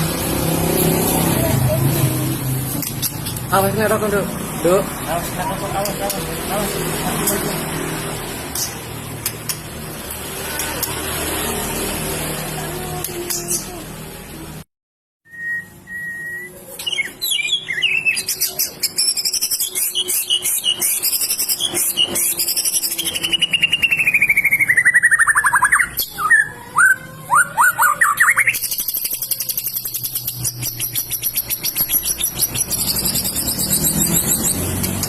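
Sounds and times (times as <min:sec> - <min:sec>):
bird singing whistles and trills: 0:15.3 - 0:34.8.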